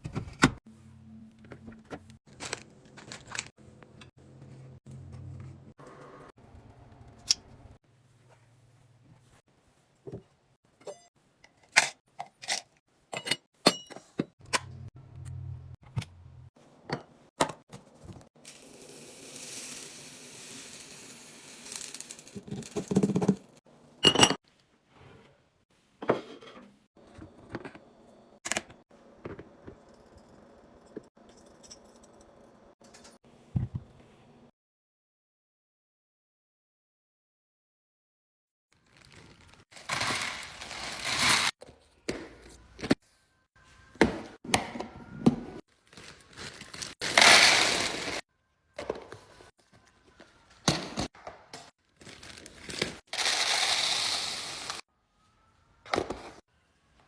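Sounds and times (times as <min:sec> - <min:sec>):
kitchenware clinking and knocking: 0:13.1 - 0:14.7.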